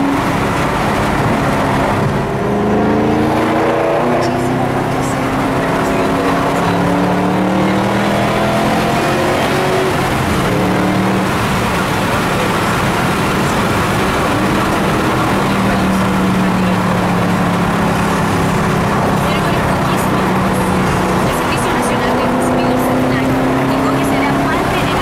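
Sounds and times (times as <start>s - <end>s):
loud car engine driving: 0.0s - 25.0s.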